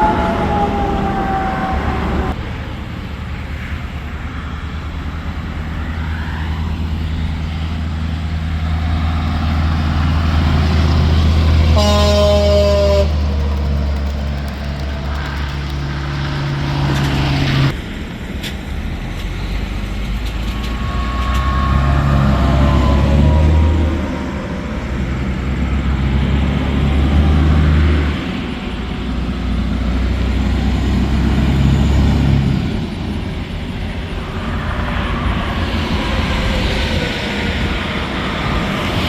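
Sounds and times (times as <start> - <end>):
truck passing: 0.0 - 39.0
vehicle approaching: 0.0 - 39.0
truck air horn blast: 8.9 - 13.5.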